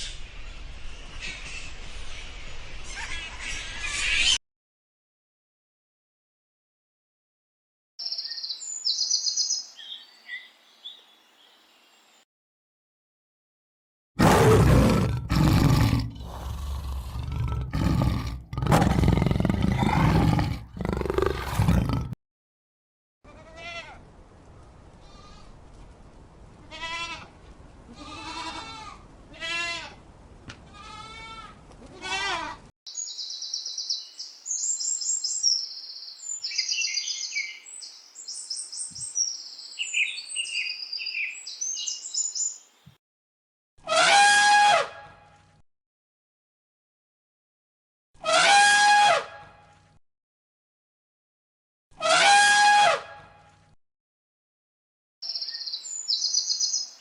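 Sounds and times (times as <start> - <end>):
high-pitched bird chirps: 8.0 - 10.5, 32.9 - 42.6, 55.2 - 57.0
animal roaring: 14.2 - 22.2
animal bleating: 26.7 - 27.3, 27.9 - 30.0, 30.7 - 32.6.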